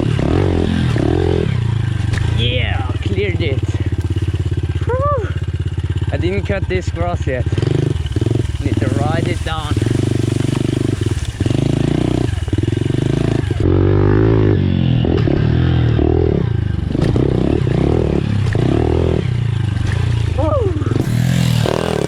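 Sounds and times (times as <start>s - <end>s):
motorbike engine revving: 0.0s - 22.0s.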